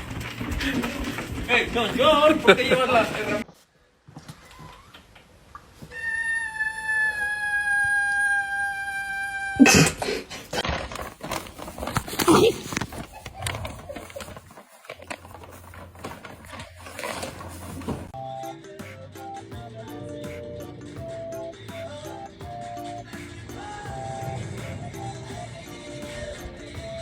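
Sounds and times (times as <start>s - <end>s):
clattering and knocking: 0.0s - 3.4s
animal high-pitched call: 5.9s - 9.7s.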